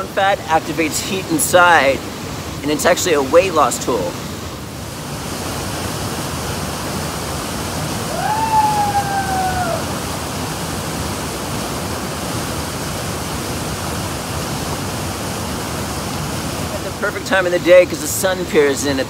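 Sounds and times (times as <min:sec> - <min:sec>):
waterfall pouring into a pool: 0:05.1 - 0:19.0.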